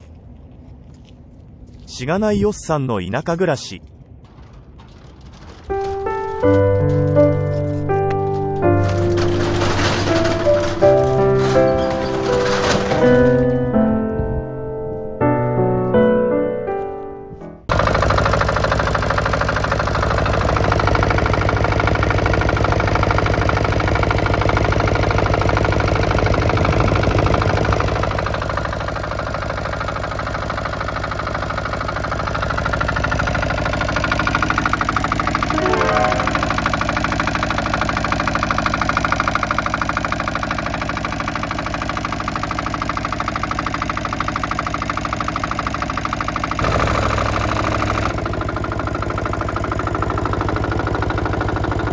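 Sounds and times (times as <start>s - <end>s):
excavator diesel engine running: 3.2s - 14.3s, 17.7s - 51.9s
short rising tone: 35.5s - 36.8s.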